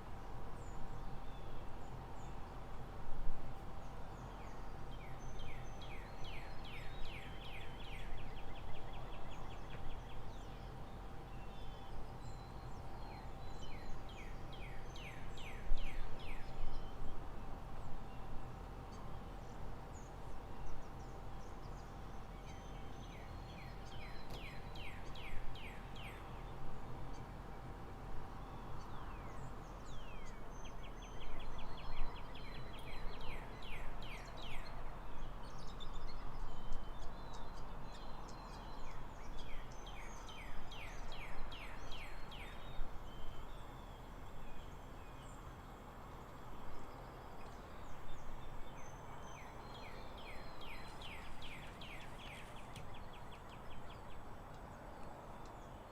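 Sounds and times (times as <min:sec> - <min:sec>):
songbirds trilling: 0:00.0 - 0:55.9
steady background noise: 0:00.0 - 0:55.9.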